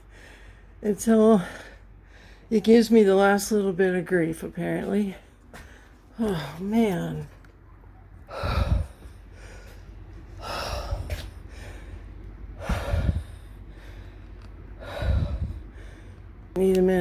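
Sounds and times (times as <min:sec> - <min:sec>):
man breathing hard and gasping: 0:08.3 - 0:16.4.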